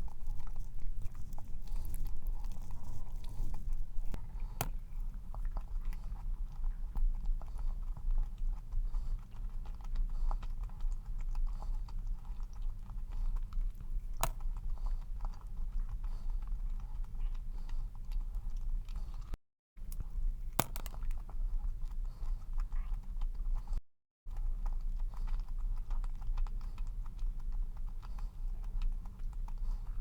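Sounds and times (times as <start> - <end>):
mouth clicks and smacks: 0.0 - 7.5
steady low hum: 0.0 - 23.6
person chewing cookie: 0.0 - 30.0.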